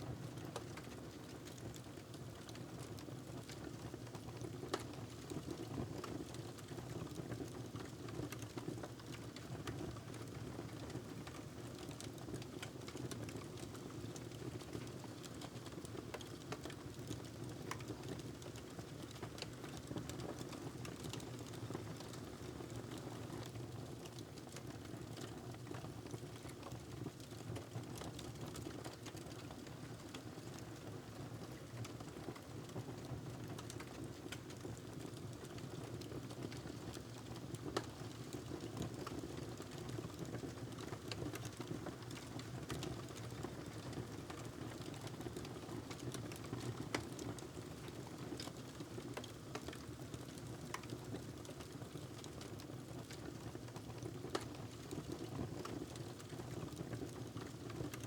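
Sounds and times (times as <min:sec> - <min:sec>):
wood fire crackling and popping: 0:11.3 - 0:23.0, 0:33.4 - 0:58.0.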